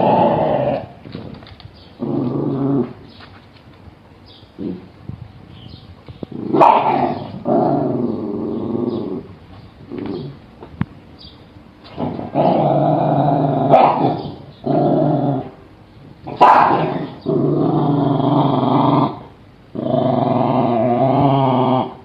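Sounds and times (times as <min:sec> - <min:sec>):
dog growling: 0:00.0 - 0:01.0, 0:02.0 - 0:03.0, 0:06.4 - 0:10.4, 0:11.9 - 0:15.6, 0:16.3 - 0:22.0.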